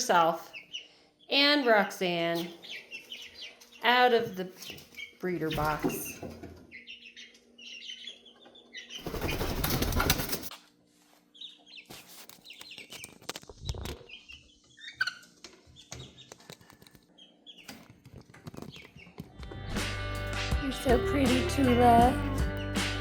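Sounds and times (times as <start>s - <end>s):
chicks peeping: 0.1s - 10.3s, 11.3s - 19.6s
wing flapping: 9.0s - 10.5s.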